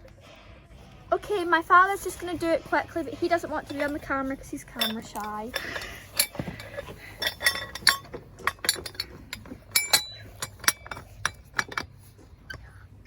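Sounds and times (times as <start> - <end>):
metal fittings clinking: 3.0 - 12.6.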